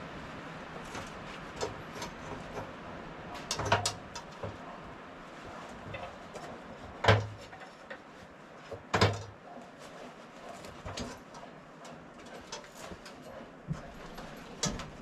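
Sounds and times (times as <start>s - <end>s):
clicks and knocks of handling: 3.4s - 4.7s, 10.5s - 15.0s.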